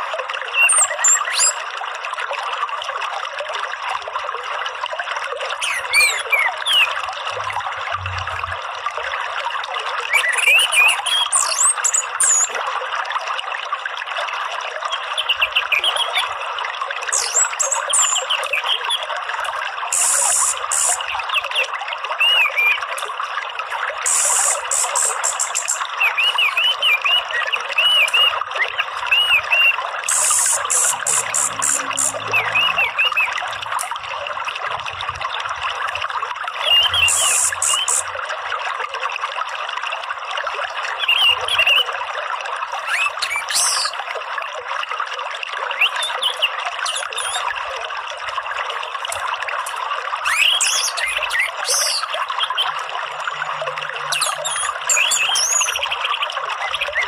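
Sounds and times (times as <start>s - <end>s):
trickling water: 0.0s - 57.0s
small birds chirping: 24.1s - 26.7s, 30.1s - 33.4s, 36.7s - 38.1s
fast high trill: 30.1s - 33.4s.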